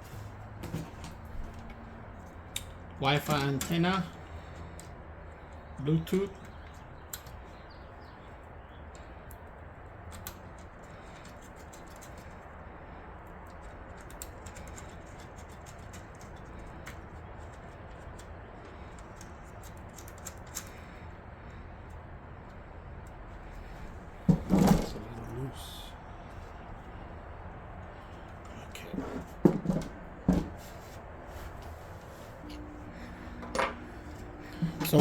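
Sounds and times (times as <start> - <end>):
small computer parts clicking: 13.3 - 21.1.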